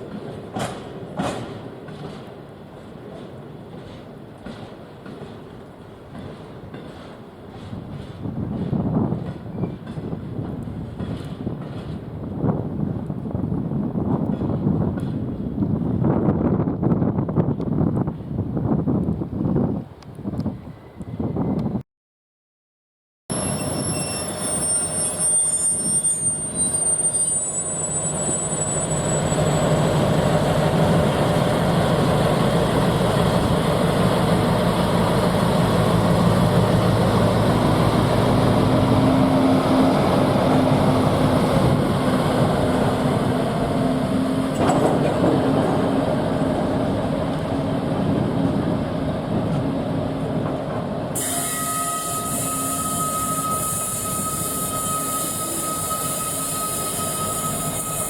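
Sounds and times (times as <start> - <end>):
freight train passing: 0.0 - 21.7, 23.3 - 58.0
high steady tone: 51.2 - 58.0.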